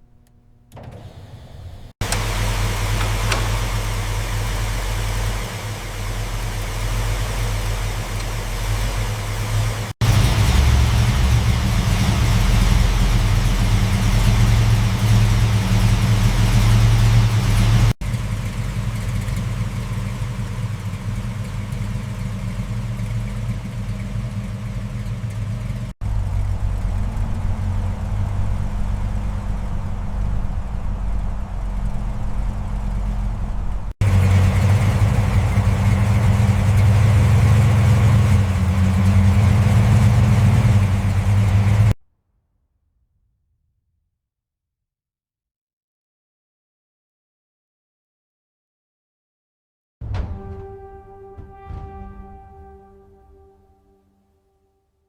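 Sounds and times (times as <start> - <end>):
car engine running: 0.0 - 42.0.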